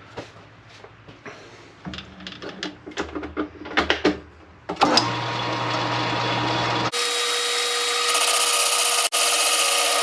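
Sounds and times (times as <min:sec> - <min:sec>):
lathe cutting whine with ringing: 0:06.9 - 0:10.0.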